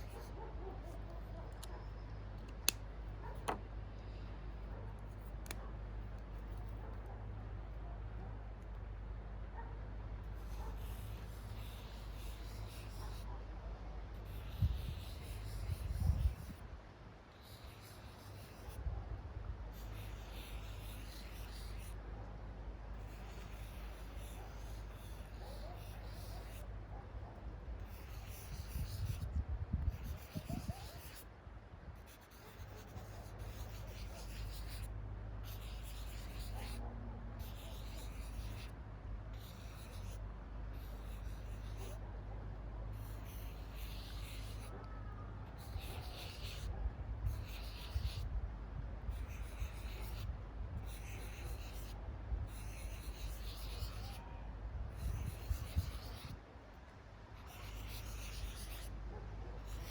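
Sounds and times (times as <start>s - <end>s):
marker scratching on paper: 0.0s - 3.6s, 10.3s - 13.4s, 14.1s - 16.7s, 17.3s - 18.9s, 19.7s - 22.0s, 22.9s - 26.7s, 27.8s - 31.3s, 32.0s - 42.0s, 42.9s - 48.4s, 49.0s - 54.3s, 54.9s - 56.4s, 57.4s - 59.0s, 59.6s - 59.9s.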